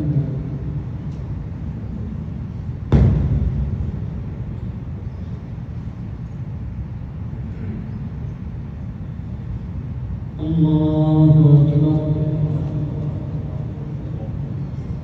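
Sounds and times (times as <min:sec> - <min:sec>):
sharp thump: 0:02.9 - 0:04.0.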